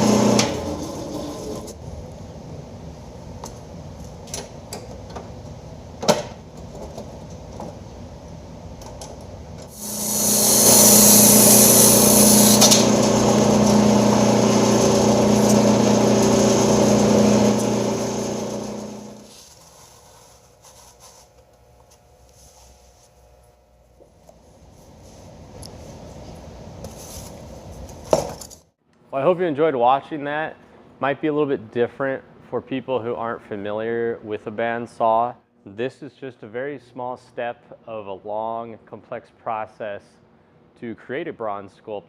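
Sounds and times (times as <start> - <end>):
band saw motor humming: 0.0 - 1.7, 9.7 - 19.3.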